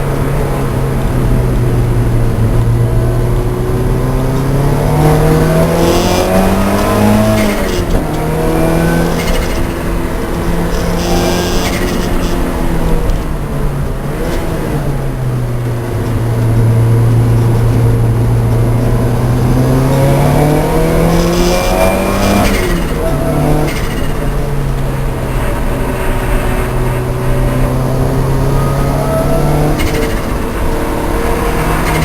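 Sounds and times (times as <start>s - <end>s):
race car engine running hard: 0.0s - 32.0s.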